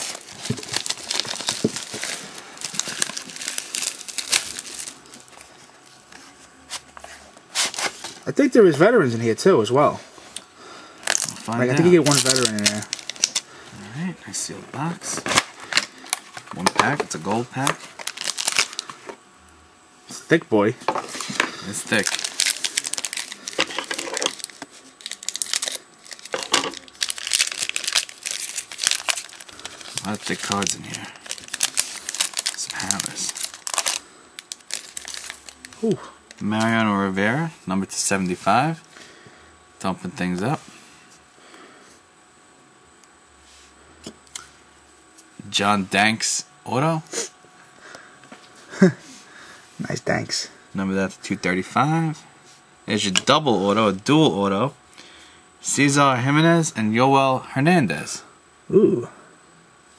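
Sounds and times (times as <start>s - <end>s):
plastic wrapping crinkling: 0.0s - 6.0s, 11.0s - 13.5s, 15.1s - 19.0s, 21.0s - 36.6s.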